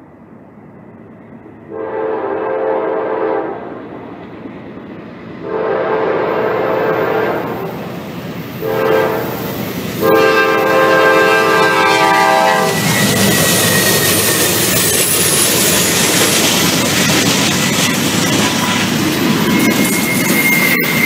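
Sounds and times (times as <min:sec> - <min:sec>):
locomotive engines and wheels rumbling: 0:00.0 - 0:21.0
locomotive air horn blasts: 0:01.7 - 0:03.6, 0:05.4 - 0:07.8, 0:08.6 - 0:12.8.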